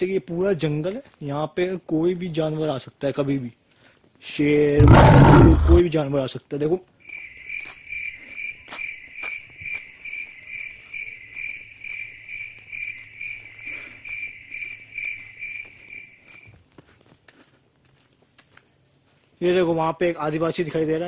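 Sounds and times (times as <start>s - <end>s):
cricket chirping: 7.0s - 19.8s.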